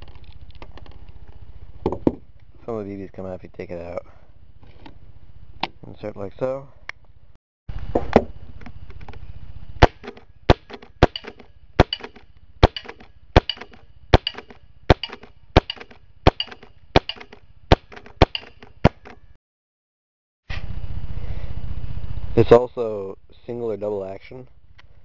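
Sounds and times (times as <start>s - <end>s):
airsoft pistol shots: 9.8s - 19.2s.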